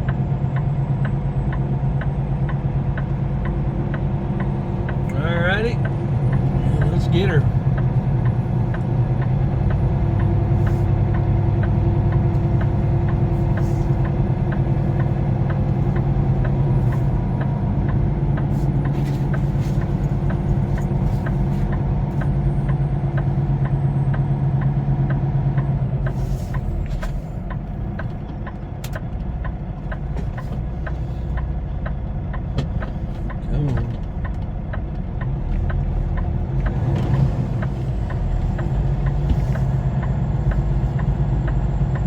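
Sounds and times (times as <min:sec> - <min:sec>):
diesel truck engine running: 0:00.0 - 0:42.0
light ticking: 0:27.4 - 0:37.0.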